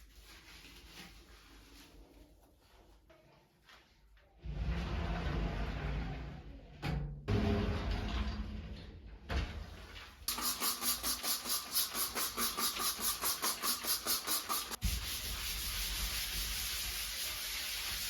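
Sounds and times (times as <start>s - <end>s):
scrubbing a surface: 0.0s - 3.1s, 10.3s - 18.0s.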